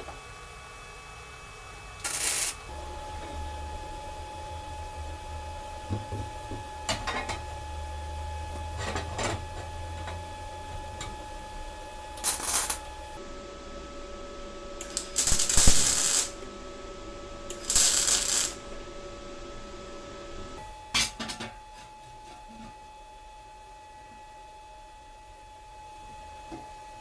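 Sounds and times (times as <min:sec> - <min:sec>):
metal pieces clinking: 0:02.0 - 0:02.6, 0:12.2 - 0:12.9, 0:14.8 - 0:16.5, 0:17.5 - 0:20.6.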